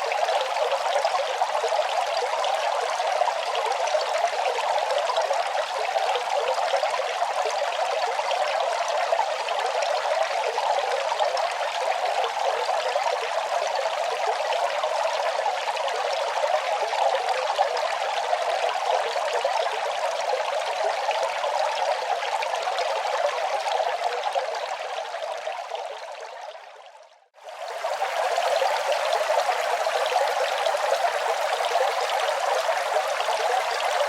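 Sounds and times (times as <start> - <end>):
running water: 27.4 - 34.0.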